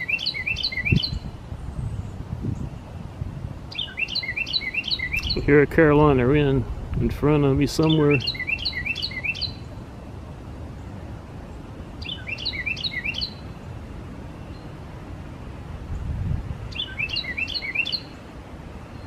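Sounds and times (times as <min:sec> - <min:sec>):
wren singing whistled notes: 0:00.0 - 0:03.0, 0:03.7 - 0:05.6, 0:07.8 - 0:09.8, 0:12.0 - 0:13.6, 0:14.4 - 0:14.8, 0:16.7 - 0:18.2.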